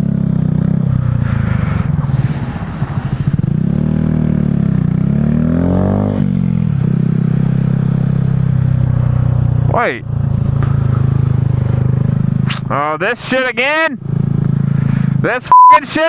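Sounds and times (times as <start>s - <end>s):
motorcycle engine revving: 0.0s - 12.9s, 14.0s - 15.2s
hiss: 1.2s - 3.6s.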